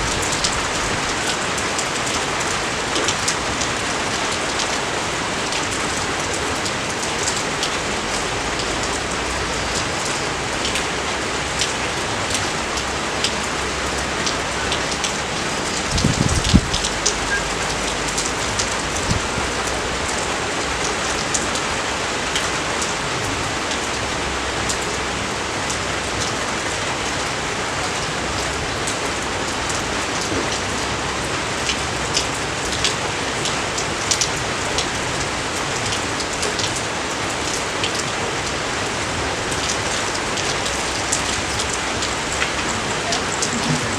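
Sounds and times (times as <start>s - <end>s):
steady rain falling: 0.0s - 43.9s
close raindrop hits: 5.4s - 22.6s.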